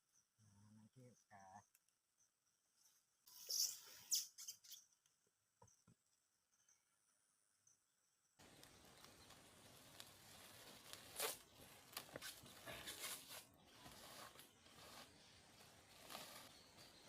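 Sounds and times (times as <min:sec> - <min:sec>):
faint rustling and crackling: 0:08.4 - 0:17.0.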